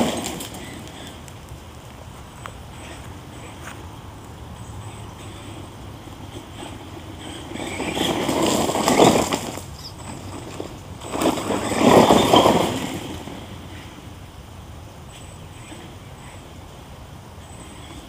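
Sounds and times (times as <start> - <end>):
electric toy truck motor: 5.2 - 14.0.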